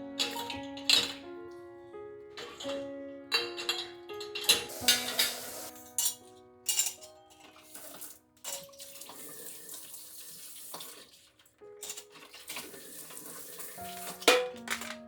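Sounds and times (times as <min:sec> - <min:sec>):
soft background music: 0:00.0 - 0:15.0
tap water running into sink: 0:04.4 - 0:05.7, 0:07.7 - 0:14.2.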